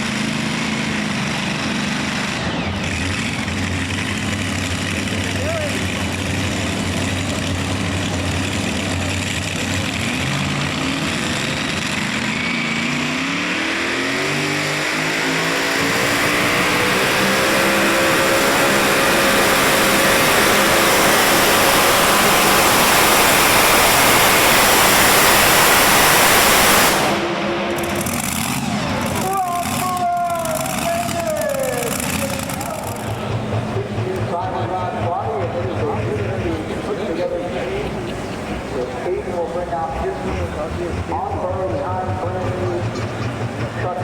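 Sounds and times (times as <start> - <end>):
diesel engine at full throttle: 0.0 - 44.0
high whine: 2.3 - 44.0.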